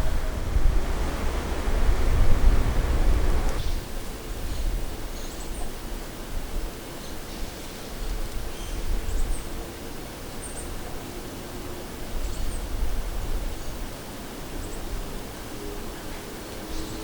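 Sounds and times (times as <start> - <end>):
wind on microphone: 0.0 - 5.1.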